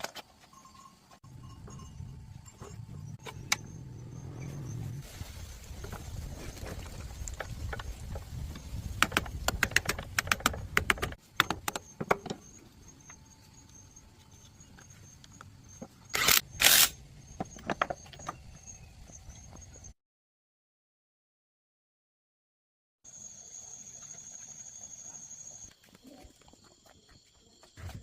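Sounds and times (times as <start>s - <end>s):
low rumble: 1.3s - 8.9s.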